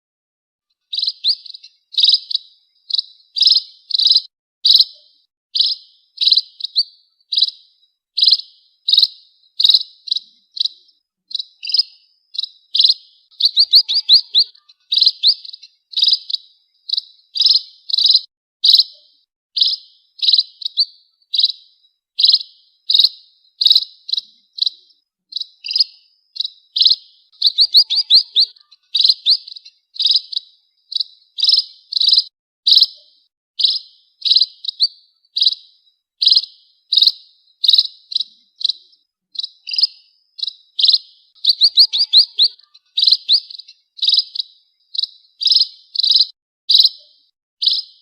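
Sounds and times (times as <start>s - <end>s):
pipit birds chirping: 0.7s - 48.0s.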